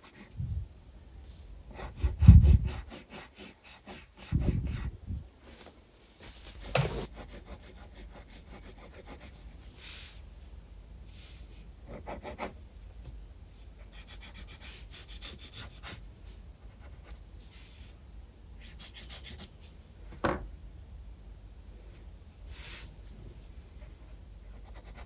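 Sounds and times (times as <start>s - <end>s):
pencil scratching on paper: 0.0s - 0.4s, 1.7s - 4.9s, 6.6s - 9.7s, 11.8s - 12.7s, 13.9s - 17.8s, 18.6s - 19.5s, 24.4s - 25.0s.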